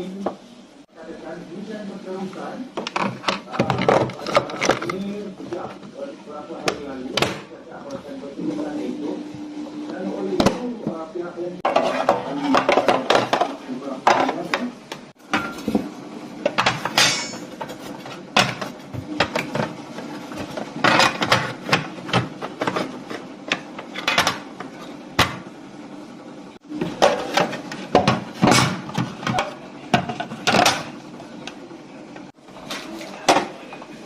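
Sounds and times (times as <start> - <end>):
faint coffee machine hum: 0.0 - 34.0
metal and crockery clinking: 16.5 - 19.7.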